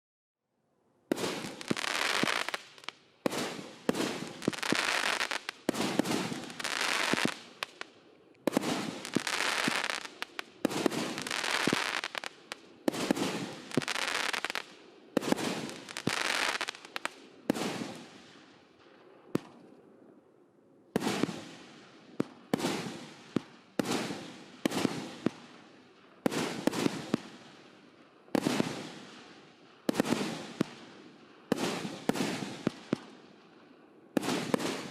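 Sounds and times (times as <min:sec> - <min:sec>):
fireworks launching: 0:01.1 - 0:07.9, 0:08.5 - 0:18.0.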